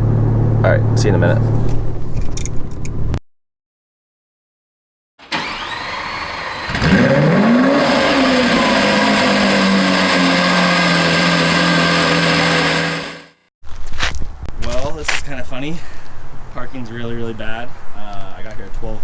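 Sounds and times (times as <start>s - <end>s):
car engine starting and idling: 0.0s - 3.2s, 5.2s - 13.2s.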